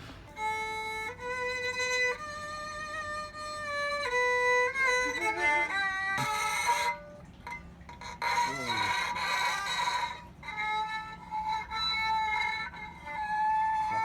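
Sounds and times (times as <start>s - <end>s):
bowed string instrument melody: 0.0s - 14.0s.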